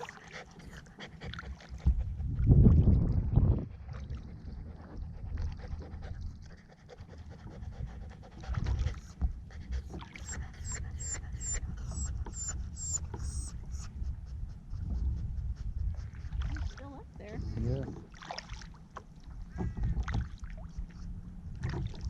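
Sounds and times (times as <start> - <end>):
dog panting: 0.0 - 2.3, 3.7 - 16.6.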